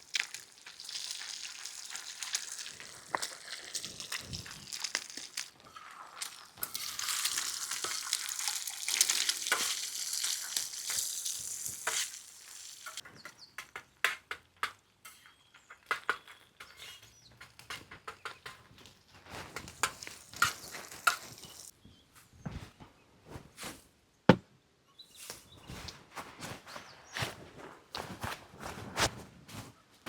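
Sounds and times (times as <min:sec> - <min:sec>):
food frying sizzle: 0:00.0 - 0:13.0, 0:19.6 - 0:21.7.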